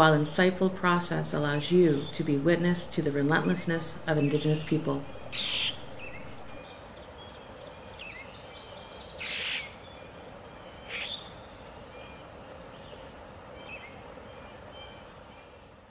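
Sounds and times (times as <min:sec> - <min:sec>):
steady background noise: 0:00.0 - 0:07.6
loud noisy bird calls: 0:01.2 - 0:06.6
high bird chirps: 0:01.6 - 0:06.6.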